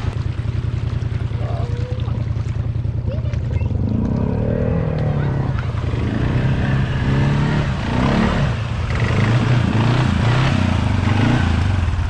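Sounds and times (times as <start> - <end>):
truck engine revving: 3.1 - 12.0.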